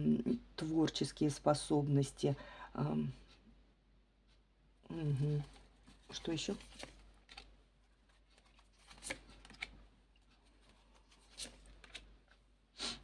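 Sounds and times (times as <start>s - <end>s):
cards rustling and tapping: 5.4s - 12.5s.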